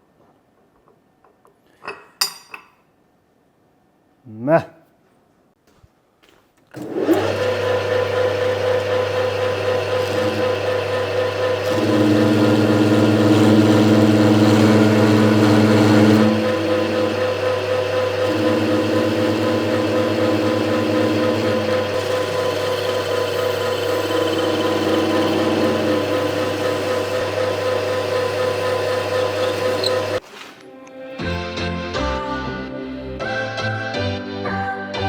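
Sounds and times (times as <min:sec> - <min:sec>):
electric machine humming: 0:06.8 - 0:30.2.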